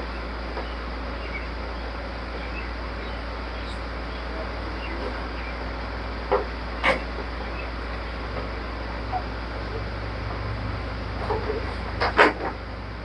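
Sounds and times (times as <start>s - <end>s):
steady low hum: 0.0s - 13.0s
car parts knocking and clicking: 11.2s - 12.6s.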